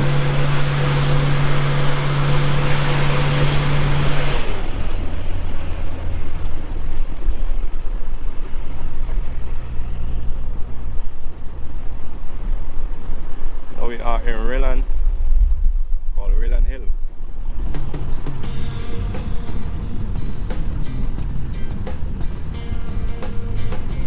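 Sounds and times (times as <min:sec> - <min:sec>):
van engine drone: 0:00.0 - 0:24.0
wind and road noise: 0:00.0 - 0:24.0.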